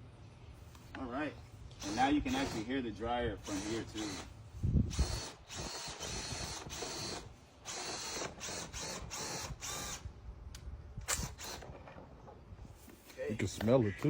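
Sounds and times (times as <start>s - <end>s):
power drill spinning brush: 1.7s - 2.7s, 3.4s - 10.0s.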